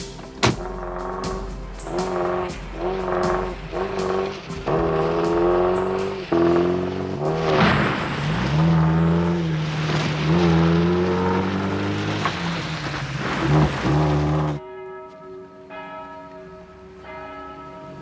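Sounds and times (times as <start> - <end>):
car engine revving hard: 0.4 - 14.6.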